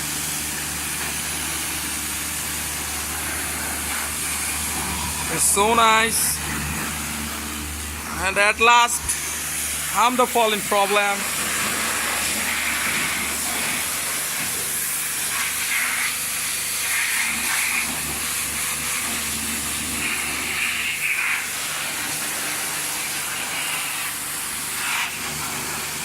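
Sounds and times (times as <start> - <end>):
low motor hum: 0.0 - 14.6
pressure washer spraying: 0.0 - 26.0.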